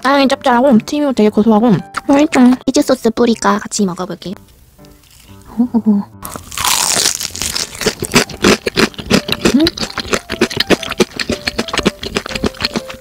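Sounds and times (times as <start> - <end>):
chewing crispy crust crunches: 6.2 - 13.0
crunchy fried chicken bite: 6.2 - 13.0.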